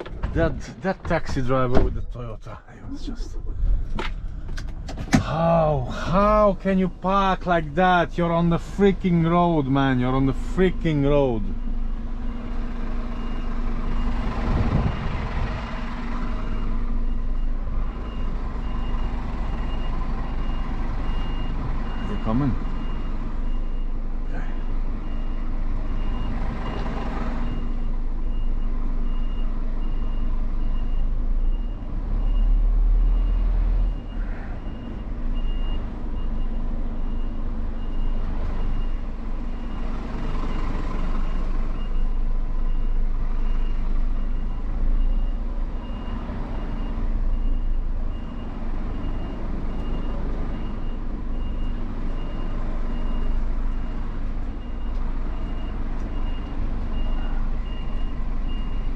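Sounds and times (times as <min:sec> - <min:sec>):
truck engine running: 0:00.0 - 0:31.0
reversing alarm beeping: 0:27.4 - 0:58.9.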